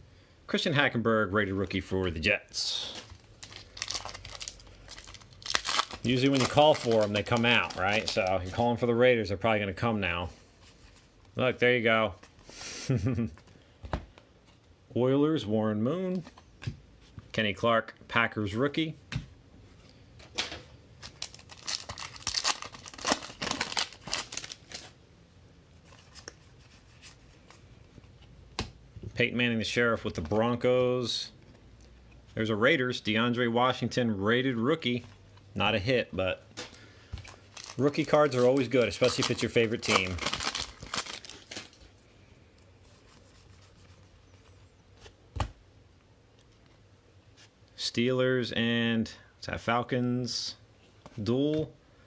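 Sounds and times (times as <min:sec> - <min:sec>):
foil wrapping rustling and tearing: 0:02.7 - 0:08.7, 0:21.0 - 0:25.0, 0:37.2 - 0:42.0
trading cards handled: 0:02.8 - 0:08.7, 0:36.5 - 0:42.0.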